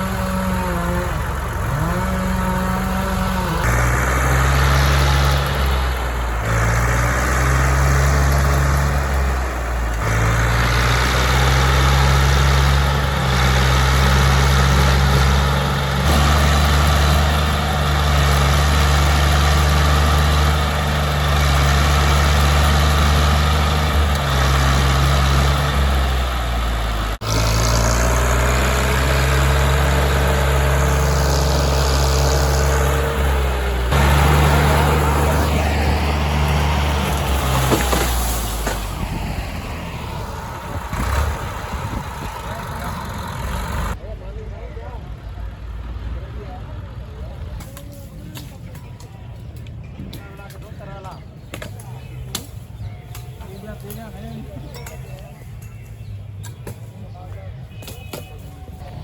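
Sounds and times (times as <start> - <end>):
large engine revving: 0.0 - 44.1.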